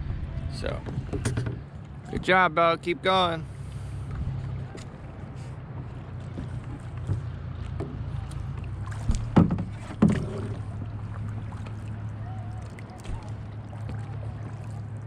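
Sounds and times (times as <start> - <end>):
steady low rumble: 0.0 - 15.0
paddle splashing in water: 3.4 - 15.0.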